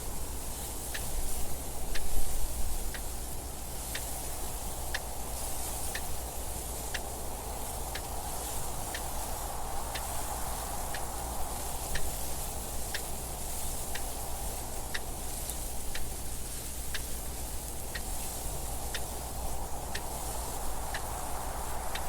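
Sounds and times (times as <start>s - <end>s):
wind noise hiss: 0.0s - 22.0s
mechanical clock ticking: 18.8s - 21.2s.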